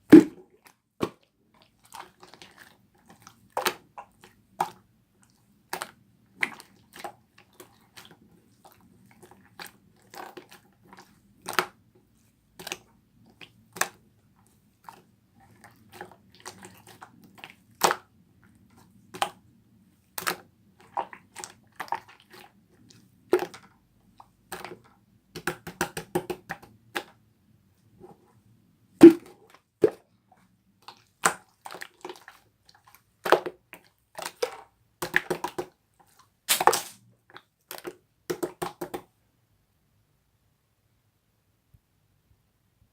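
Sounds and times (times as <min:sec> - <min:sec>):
slime squishing and popping: 0:29.0 - 0:30.0, 0:36.5 - 0:37.0
slime crackling: 0:36.5 - 0:37.0.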